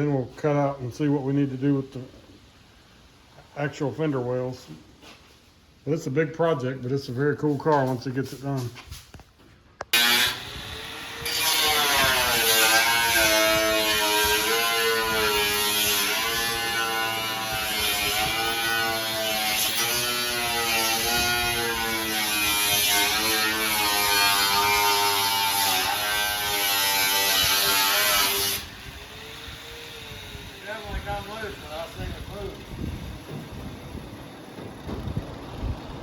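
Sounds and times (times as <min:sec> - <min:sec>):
power tool cutting sheet metal: 0:09.9 - 0:35.2.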